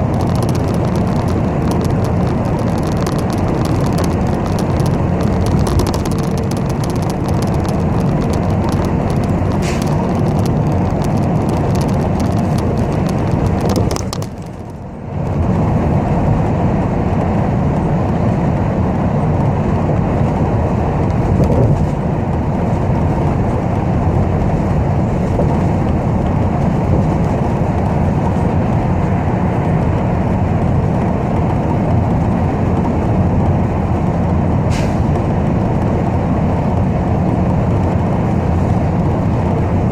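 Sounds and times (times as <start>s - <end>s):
fine rattling clicks: 0.0s - 14.8s
bus engine and road rumble: 0.0s - 39.9s.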